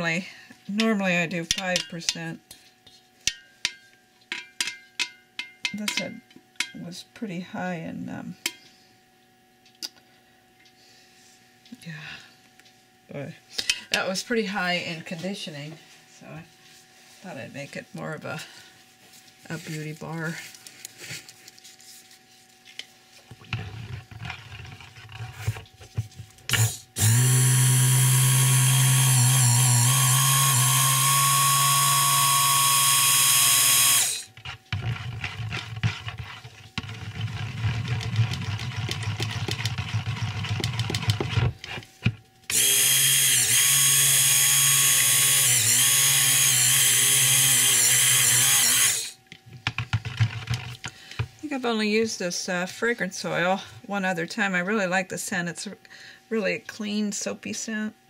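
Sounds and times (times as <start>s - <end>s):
stick blender motor running: 26.5s - 41.7s, 42.5s - 49.2s.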